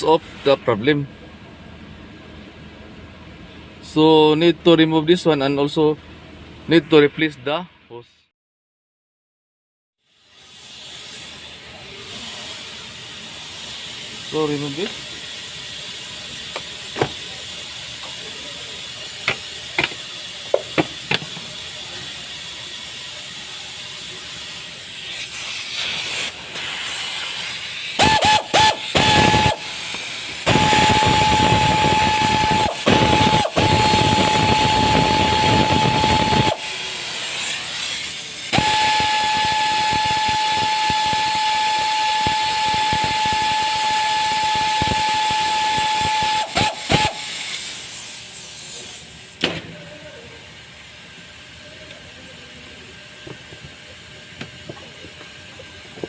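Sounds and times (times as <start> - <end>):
rushing air with high whistle: 24.9 - 48.3.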